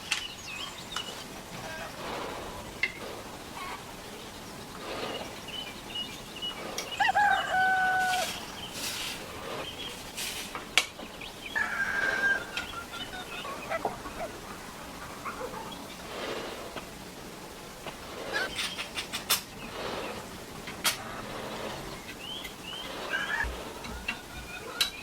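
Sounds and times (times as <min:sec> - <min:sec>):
rooster crowing: 0:06.8 - 0:08.5, 0:11.5 - 0:13.8
brief hissing noises: 0:08.1 - 0:09.3, 0:10.1 - 0:10.6.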